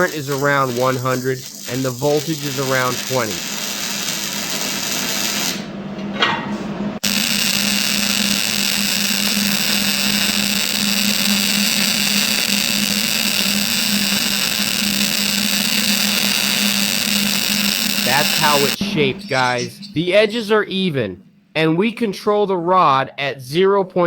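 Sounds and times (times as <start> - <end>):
welding arc hiss: 0.0 - 5.7, 7.0 - 18.8.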